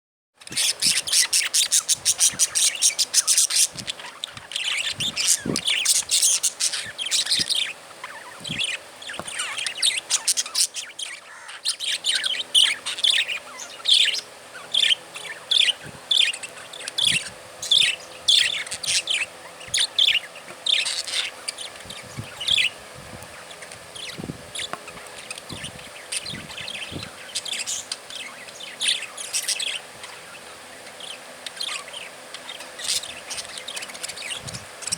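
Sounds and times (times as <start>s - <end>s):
budgerigars chirping: 0.4s - 34.9s.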